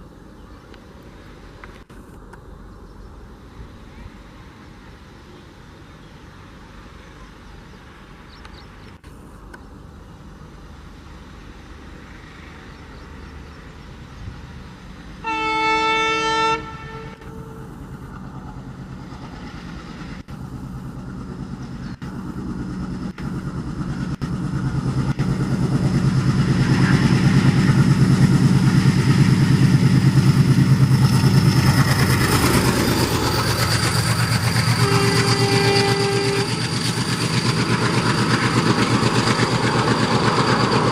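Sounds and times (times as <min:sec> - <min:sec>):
locomotive engine passing: 0:00.0 - 0:40.9
diesel locomotive horn: 0:15.2 - 0:18.0, 0:34.6 - 0:36.9.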